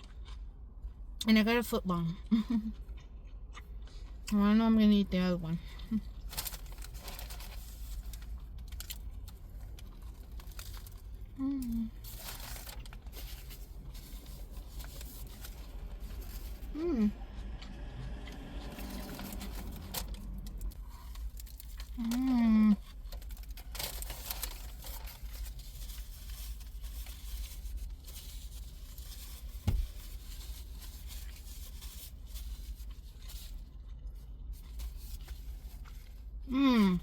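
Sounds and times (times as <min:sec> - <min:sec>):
chewing and crunching: 0:00.0 - 0:01.3, 0:02.0 - 0:37.0
chip bag crinkling: 0:06.1 - 0:16.7, 0:18.1 - 0:36.3
person humming: 0:16.8 - 0:17.2.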